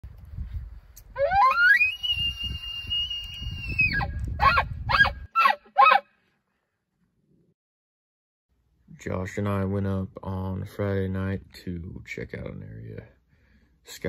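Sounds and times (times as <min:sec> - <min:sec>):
low wind rumble: 0:00.0 - 0:05.3
elk bugling: 0:01.2 - 0:06.1.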